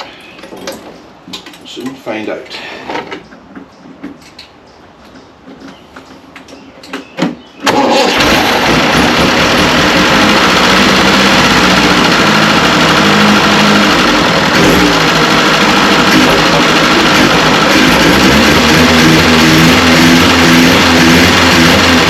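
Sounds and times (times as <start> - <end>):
engine starter clicks: 7.6 - 13.0
petrol engine running: 7.7 - 22.0.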